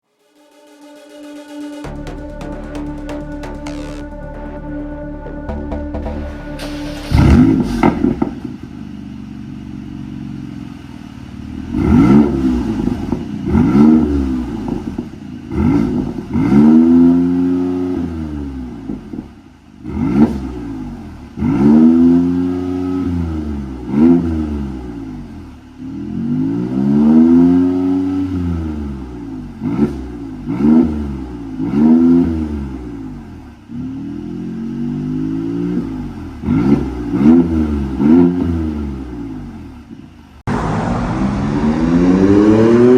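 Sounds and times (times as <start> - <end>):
car engine idling and revving: 0.0 - 42.9
exhaust cracks: 1.5 - 10.1.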